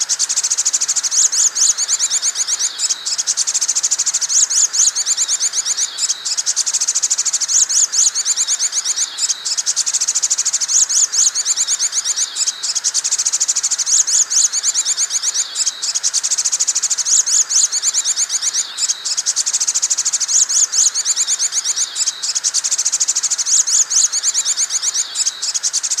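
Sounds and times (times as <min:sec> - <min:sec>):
bird call trills: 0:00.0 - 0:26.0.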